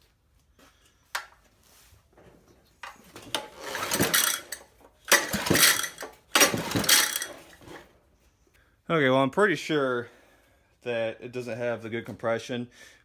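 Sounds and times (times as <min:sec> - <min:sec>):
small engine recoil starter cranking: 0:03.2 - 0:07.8.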